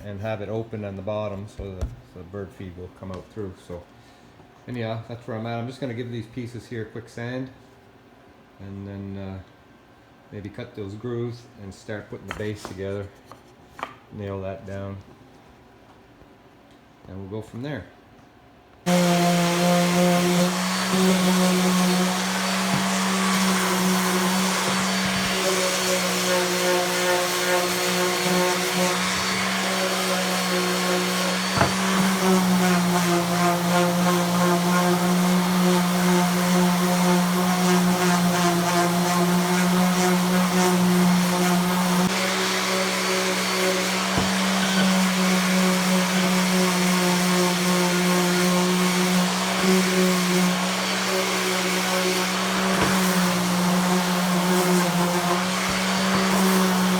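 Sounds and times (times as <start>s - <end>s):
electric sander on wood: 18.9s - 56.9s.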